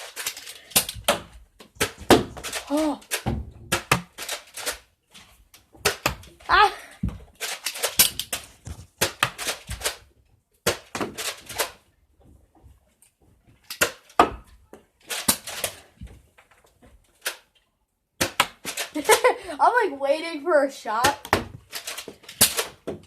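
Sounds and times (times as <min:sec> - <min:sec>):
toy blasters clacking and firing: 0:00.0 - 0:04.9, 0:07.4 - 0:10.0, 0:15.0 - 0:15.8, 0:18.2 - 0:19.4, 0:20.9 - 0:23.0.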